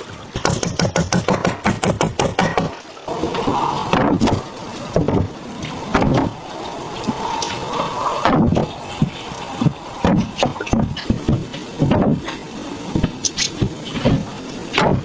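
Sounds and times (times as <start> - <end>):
falling water rushing: 0.0 - 15.0
wood knocks and thuds: 0.4 - 2.8, 5.9 - 6.4, 10.0 - 12.2.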